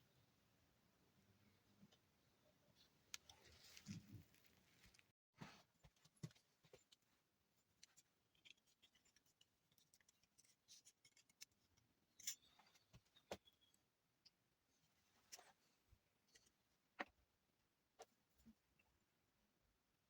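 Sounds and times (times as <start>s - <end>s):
faint clicks and scrapes: 2.7s - 17.2s.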